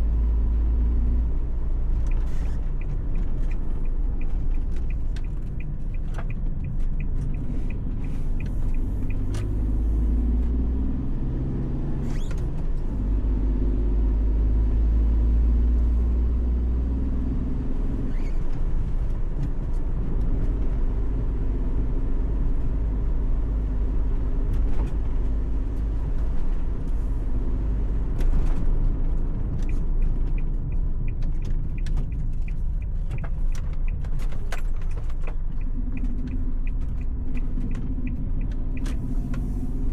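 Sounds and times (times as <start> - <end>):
van engine and road rumble: 0.0 - 39.9.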